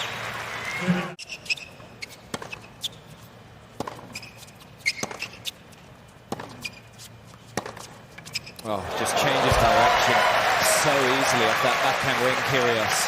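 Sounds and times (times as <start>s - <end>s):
crowd applause: 0.0s - 1.2s, 8.8s - 13.0s
sneaker squeaks: 0.7s - 8.7s
racket hitting tennis ball: 2.3s - 2.7s, 3.7s - 5.6s, 6.3s - 6.9s, 7.5s - 7.9s.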